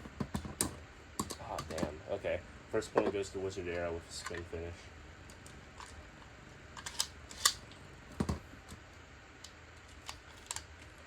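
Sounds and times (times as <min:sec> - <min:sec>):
plastic toys clicking and tapping: 0:00.2 - 0:01.9.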